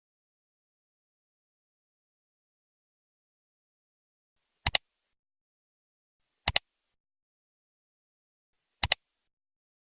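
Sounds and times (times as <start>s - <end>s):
sharp double clicks: 4.6s - 4.8s, 6.4s - 6.7s, 8.8s - 9.0s.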